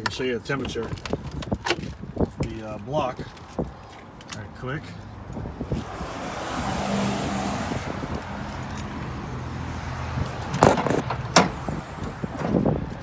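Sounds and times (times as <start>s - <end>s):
car hood metallic clunks: 10.5s - 11.7s.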